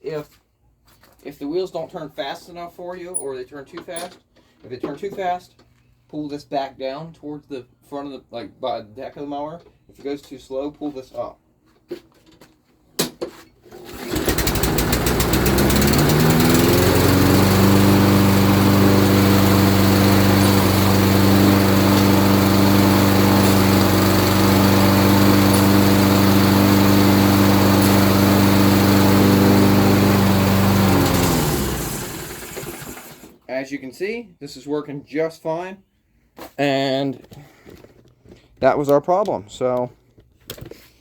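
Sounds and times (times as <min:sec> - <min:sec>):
lawn mower engine running: 0:13.7 - 0:33.4.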